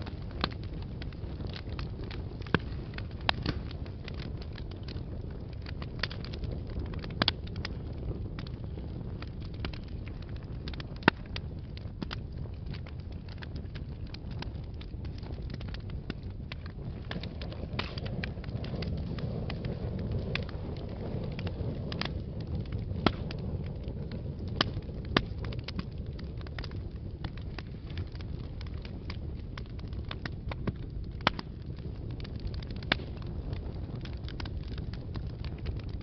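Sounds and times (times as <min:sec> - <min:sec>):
flames rumbling: 0:00.0 - 0:36.0
wood fire crackling and popping: 0:00.0 - 0:36.0.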